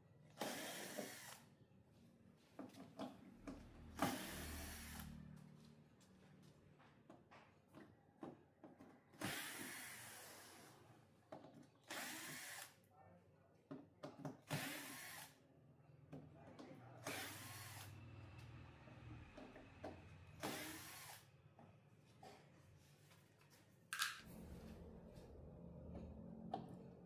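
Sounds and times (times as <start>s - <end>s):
electric screwdriver bursts: 0.4s - 1.5s, 4.0s - 5.1s, 11.9s - 12.8s, 14.4s - 15.4s, 17.0s - 17.9s, 20.4s - 21.3s.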